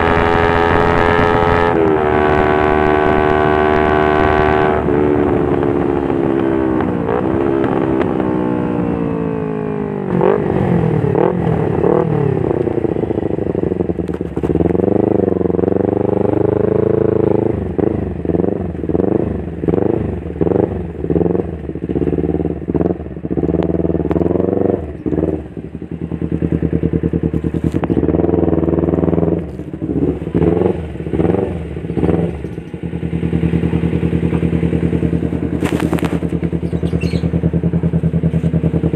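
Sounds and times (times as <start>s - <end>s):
motorcycle engine revving: 0.0s - 38.9s
motorcycle engine idling: 10.9s - 38.9s.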